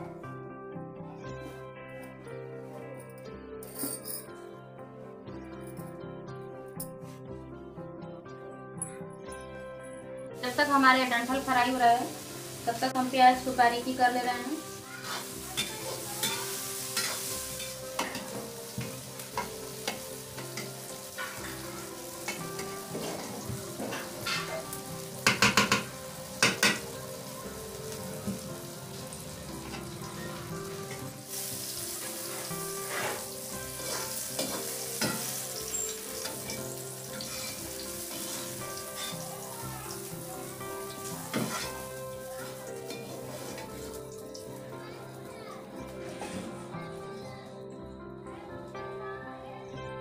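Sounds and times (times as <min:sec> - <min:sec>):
vegetables sizzling in a pan: 0:10.4 - 0:45.5
metal spatula scraping pan: 0:15.0 - 0:18.4, 0:32.8 - 0:36.5, 0:37.1 - 0:39.1, 0:41.4 - 0:41.8.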